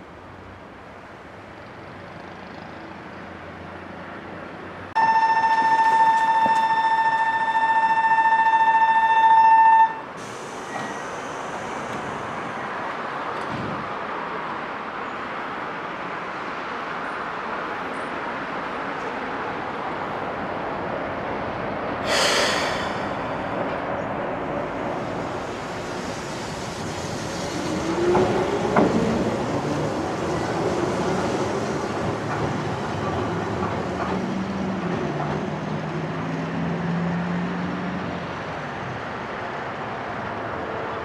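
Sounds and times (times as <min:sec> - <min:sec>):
air hiss: 0:10.2 - 0:12.2, 0:22.0 - 0:23.5.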